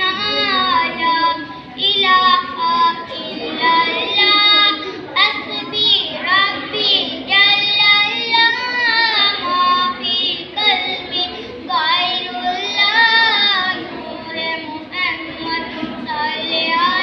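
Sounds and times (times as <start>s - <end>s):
child singing: 0.0s - 17.0s.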